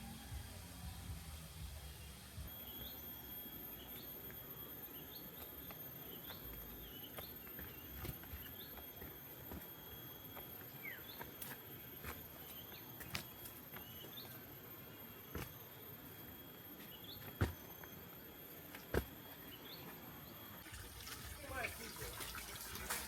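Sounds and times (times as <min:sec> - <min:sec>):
insects droning: 0:00.0 - 0:23.0
bird chirps: 0:02.5 - 0:14.5.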